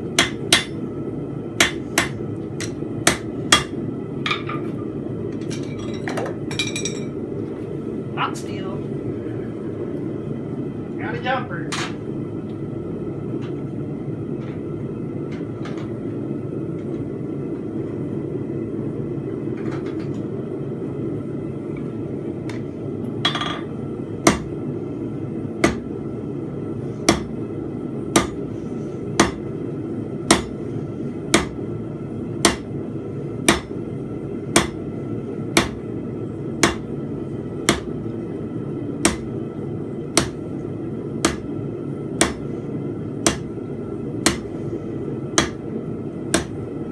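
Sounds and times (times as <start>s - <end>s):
hammer striking anvil: 0.2s - 0.8s, 1.6s - 4.6s, 24.3s - 24.5s, 27.1s - 27.3s, 28.2s - 28.4s, 29.2s - 29.4s, 30.3s - 30.5s, 31.4s - 31.6s, 32.4s - 32.7s, 33.5s - 33.7s, 34.6s - 34.8s, 36.6s - 36.8s, 37.7s - 37.9s, 39.0s - 39.2s, 40.2s - 40.4s, 41.2s - 41.5s, 42.2s - 42.5s, 43.2s - 43.5s, 44.2s - 44.5s, 45.4s - 45.6s, 46.3s - 46.6s.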